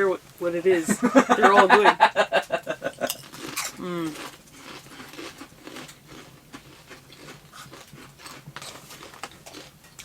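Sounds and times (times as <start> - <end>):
potato chips crunching: 3.0 - 10.0
person humming mm: 3.8 - 4.2.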